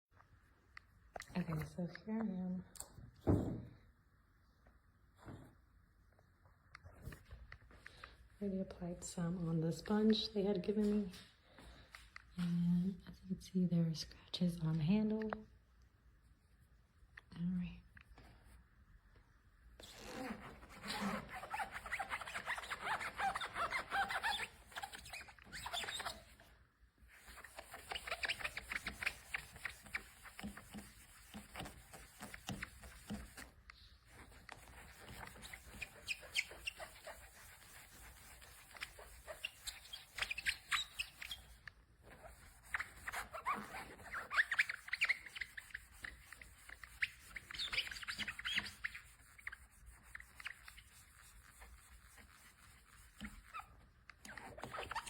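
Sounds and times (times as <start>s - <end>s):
sponge scrubbing car paint: 20.1s - 26.4s, 27.1s - 55.0s.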